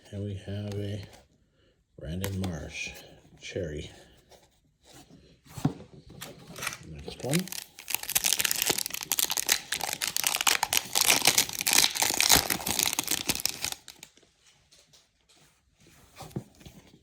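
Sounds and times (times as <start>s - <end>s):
foil wrapper tearing and crinkling: 6.6s - 14.1s.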